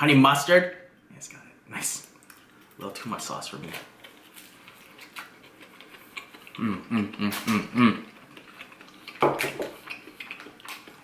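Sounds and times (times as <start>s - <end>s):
chewing crispy food: 2.1s - 11.0s
person humming mm: 6.5s - 8.2s.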